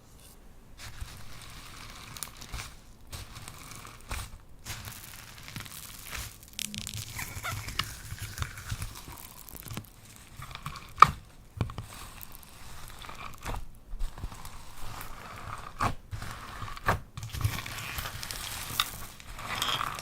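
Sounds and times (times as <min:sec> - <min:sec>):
slime crackling and squelching: 0:00.8 - 0:20.0.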